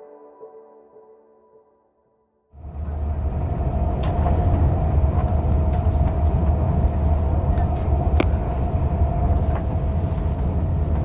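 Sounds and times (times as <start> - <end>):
faint clicks: 2.6 - 11.0
mid-pitched hum: 2.6 - 11.0
train rumbling: 2.6 - 11.0.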